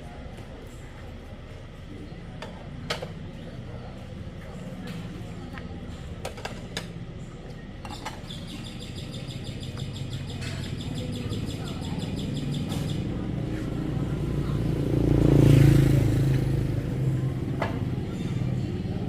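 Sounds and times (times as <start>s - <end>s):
vehicle engine passing: 11.3s - 19.0s.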